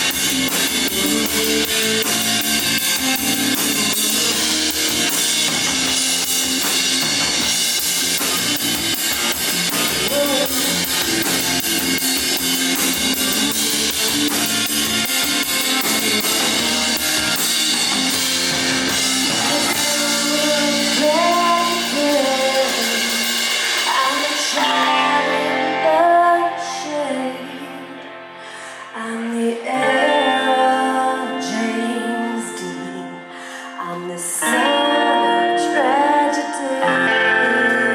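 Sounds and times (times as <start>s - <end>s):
drum kit with cymbals: 0.0s - 26.2s
rock band playing: 0.0s - 28.6s, 34.4s - 37.9s
electric guitars: 0.0s - 37.9s.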